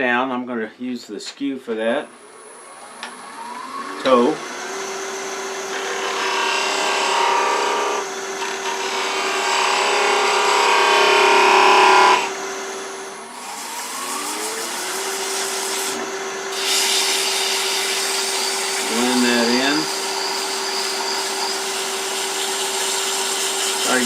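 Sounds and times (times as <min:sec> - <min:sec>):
lathe motor hum: 0:02.6 - 0:24.0
chisel cutting wood: 0:04.0 - 0:12.6, 0:13.3 - 0:24.0.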